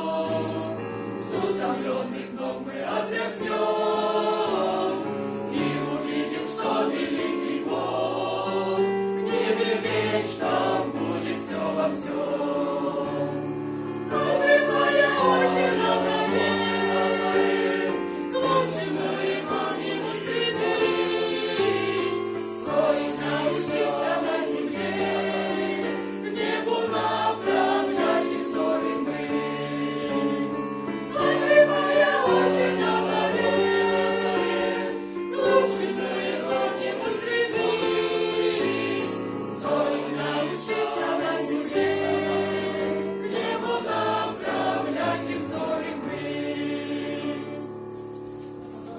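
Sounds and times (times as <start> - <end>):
church choir singing: 0.0 - 48.9.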